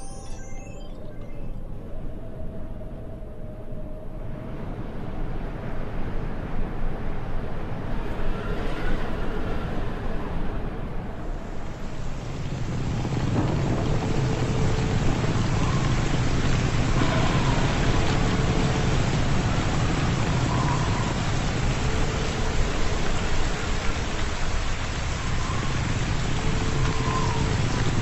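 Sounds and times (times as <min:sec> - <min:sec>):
heavy rain pouring: 0:11.3 - 0:28.0.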